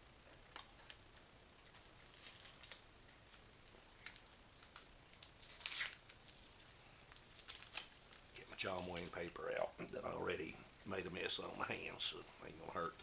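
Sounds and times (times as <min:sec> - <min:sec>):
packaging rustle: 0:01.7 - 0:03.4, 0:04.0 - 0:09.3.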